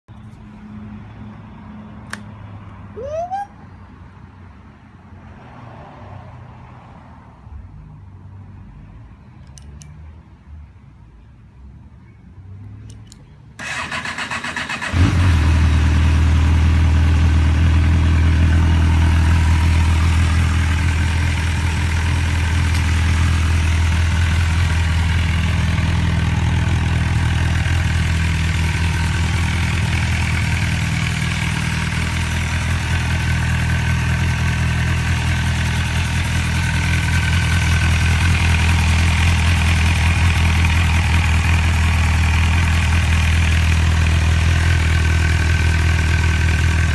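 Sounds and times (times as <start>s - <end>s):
motorcycle starter cranking: 13.6s - 15.2s
motorcycle engine idling: 13.6s - 46.9s.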